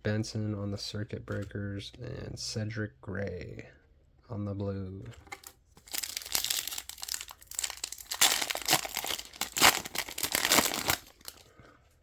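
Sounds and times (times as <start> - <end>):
wrapper tearing and crinkling: 5.4 - 11.4.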